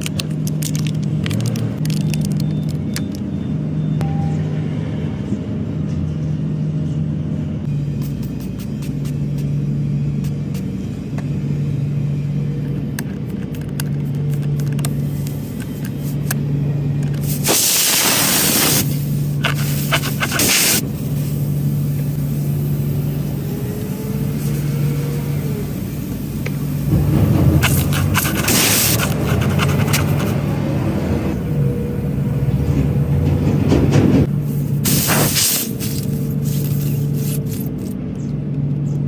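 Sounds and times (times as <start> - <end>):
loud hissing noise bursts: 17.2 - 29.1, 34.4 - 37.4.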